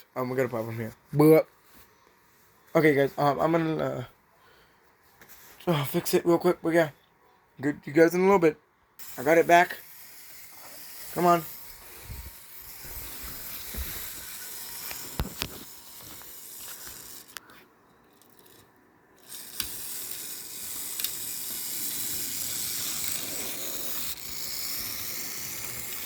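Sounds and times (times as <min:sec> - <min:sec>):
model train whirring: 0:09.0 - 0:26.0.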